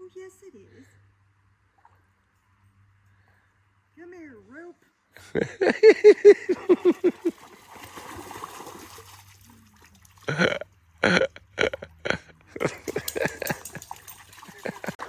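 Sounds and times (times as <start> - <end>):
person laughing: 5.2 - 7.3, 10.3 - 13.8, 14.5 - 15.0.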